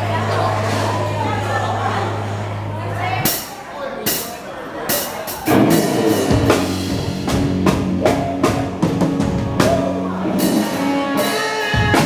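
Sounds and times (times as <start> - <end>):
drum kit beat: 3.3 - 12.0
live band playing dance music: 4.9 - 12.0.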